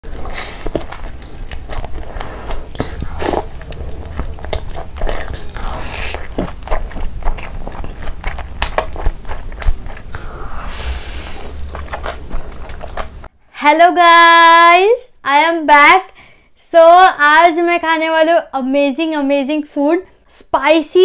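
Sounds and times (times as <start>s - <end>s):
biting and chewing food: 0.0s - 10.3s, 11.1s - 13.3s.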